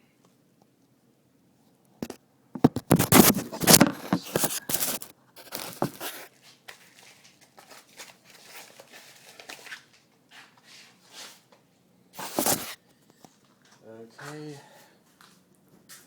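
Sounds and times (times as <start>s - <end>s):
crinkling and rustling handling noise: 2.0s - 14.5s.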